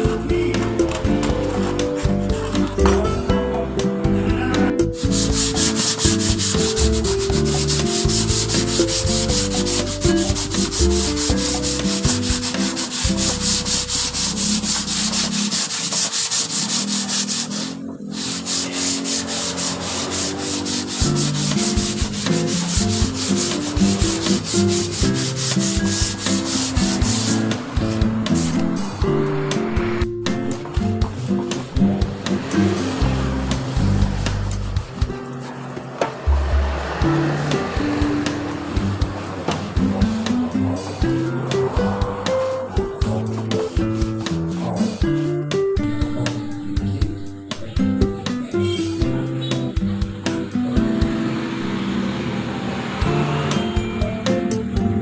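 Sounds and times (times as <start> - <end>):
sandpaper rubbing: 1.0 - 3.0, 5.0 - 29.0, 37.4 - 45.3.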